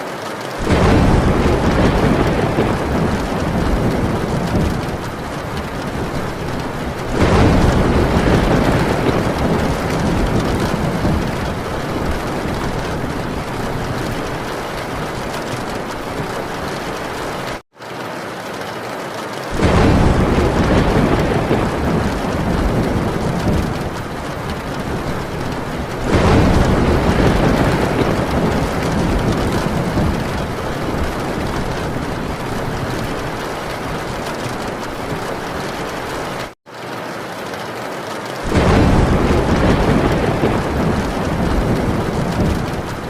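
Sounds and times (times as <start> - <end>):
heavy rain on a tin roof: 0.0 - 43.0
thunder rumbling: 0.5 - 17.6, 19.5 - 36.6, 38.4 - 43.0.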